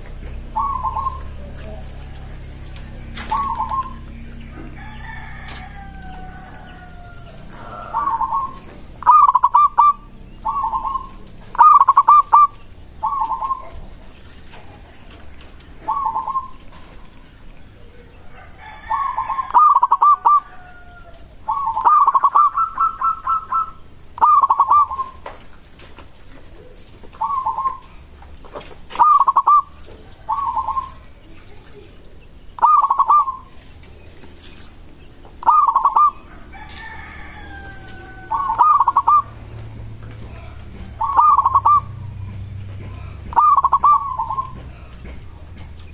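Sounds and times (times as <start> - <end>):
dove cooing: 0.0 - 45.9.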